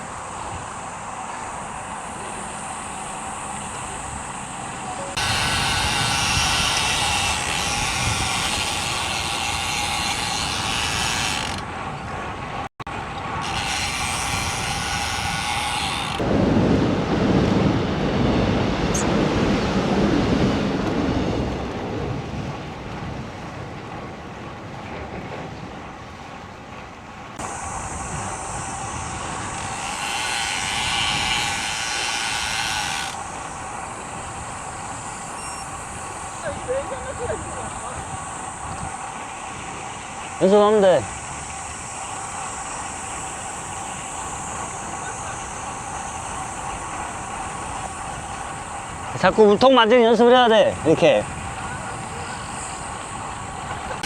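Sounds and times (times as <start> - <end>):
bicycle freewheel ratchet buzzing: 2.0 - 11.7, 13.4 - 16.2, 27.4 - 49.3, 50.7 - 54.0
wind on microphone: 3.3 - 49.9, 50.5 - 54.0.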